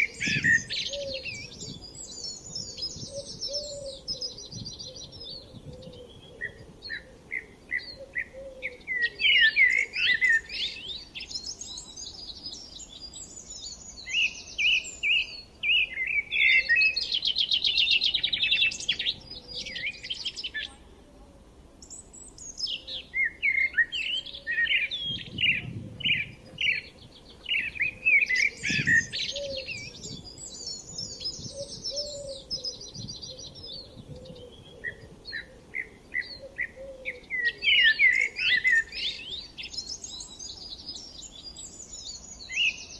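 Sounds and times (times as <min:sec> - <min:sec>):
songbirds chirping and trilling: 0:00.0 - 0:42.9.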